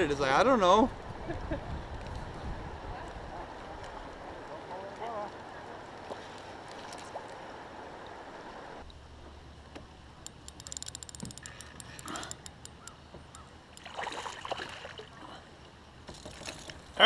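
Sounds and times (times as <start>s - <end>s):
water around a kayak: 0.0s - 17.0s
water splashes: 2.2s - 10.2s, 11.1s - 17.0s
small high clicks: 10.2s - 13.9s.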